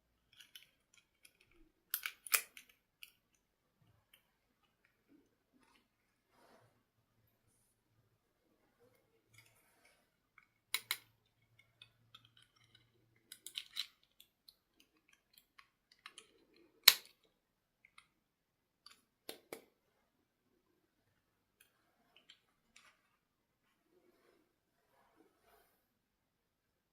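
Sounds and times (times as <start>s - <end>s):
objects clicking when handled: 0.3s - 3.3s, 10.4s - 18.1s.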